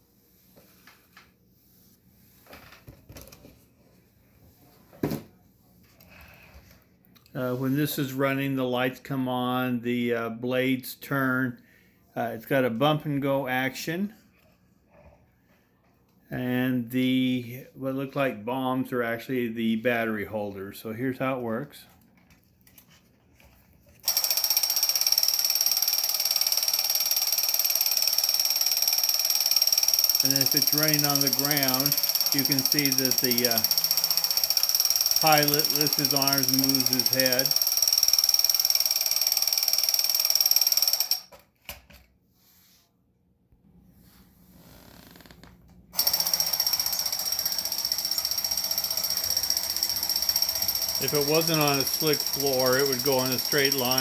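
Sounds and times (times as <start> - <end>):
toy helicopter motor whirring: 24.0 - 41.4, 46.0 - 54.0.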